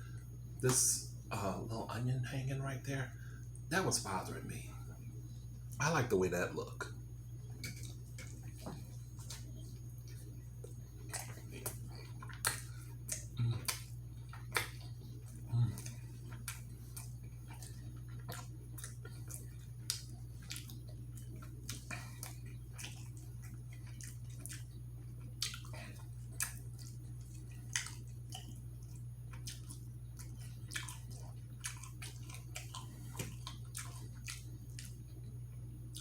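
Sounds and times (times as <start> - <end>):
steady low hum: 0.0 - 36.0
person chewing food: 7.4 - 36.0
wet mouth clicks and smacks: 11.1 - 24.7, 25.4 - 27.0, 27.6 - 34.9.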